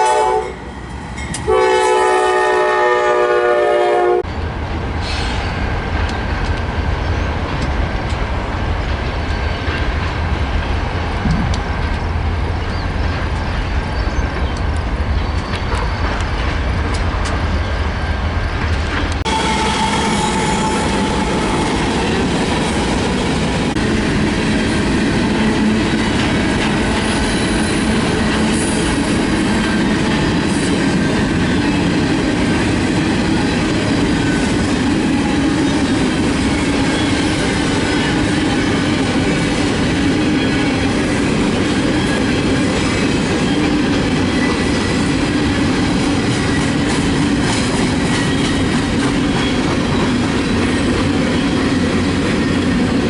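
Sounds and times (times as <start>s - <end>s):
steel wheels rolling on rail: 0.0s - 53.0s
high wheel squeal: 19.3s - 21.8s.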